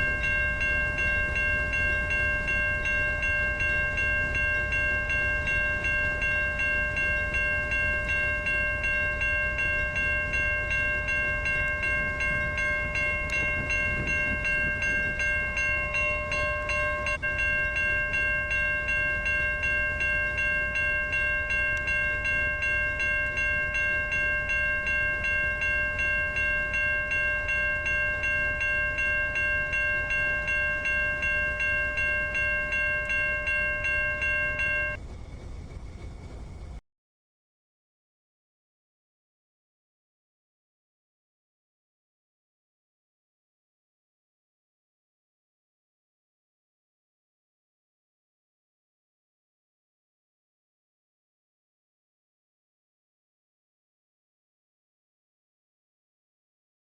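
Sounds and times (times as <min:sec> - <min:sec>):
crossing bell ringing: 0:00.0 - 0:35.0
train rumbling past: 0:00.0 - 0:36.8.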